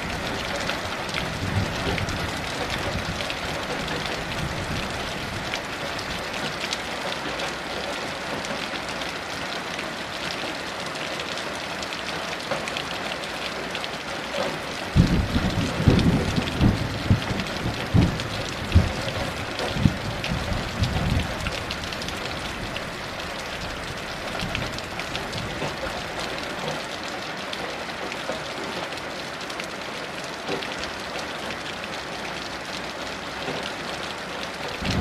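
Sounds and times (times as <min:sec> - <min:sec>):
thunder rumbling: 0:15.0 - 0:22.9, 0:34.8 - 0:35.0.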